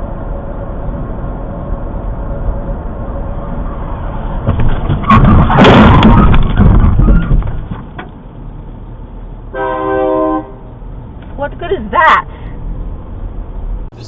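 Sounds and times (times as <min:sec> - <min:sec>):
car road and engine noise: 0:00.0 - 0:14.0
rushing noise and knocks: 0:04.4 - 0:08.2.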